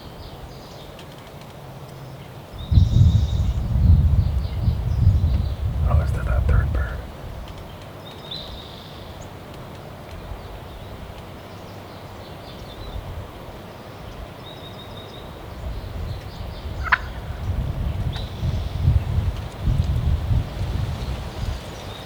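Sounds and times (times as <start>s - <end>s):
low rumbling noise: 3.4s - 7.4s
wild turkey gobbling: 16.8s - 17.5s.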